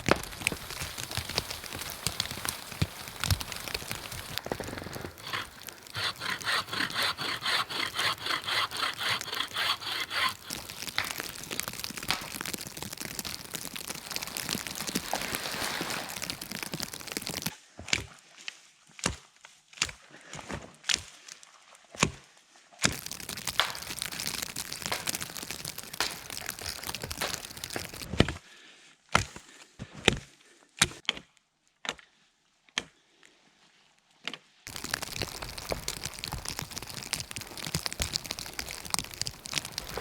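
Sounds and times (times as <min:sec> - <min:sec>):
rustling and crackling: 0:00.0 - 0:17.6, 0:22.9 - 0:28.2, 0:34.7 - 0:40.0
hand saw cutting wood: 0:03.3 - 0:11.1.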